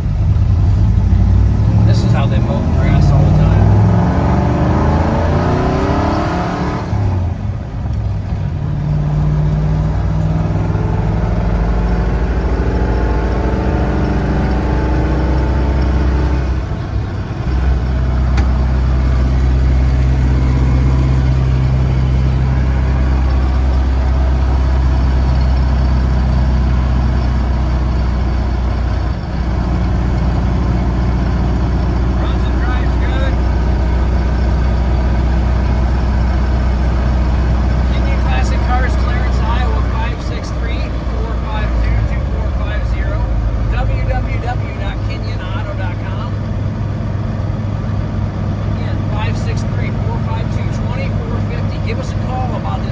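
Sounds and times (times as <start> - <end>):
truck engine running: 0.0 - 52.9.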